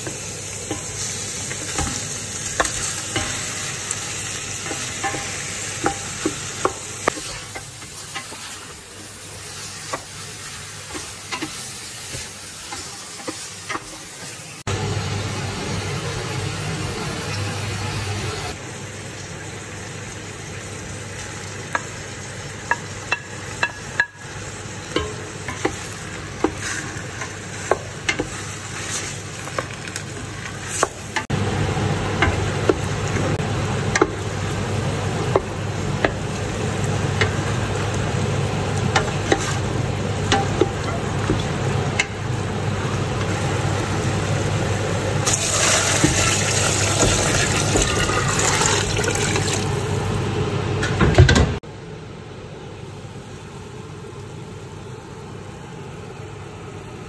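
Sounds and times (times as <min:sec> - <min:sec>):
food sizzling in a pot: 0:00.0 - 0:50.8, 0:52.8 - 0:57.0
water pouring with hiss: 0:45.2 - 0:50.2.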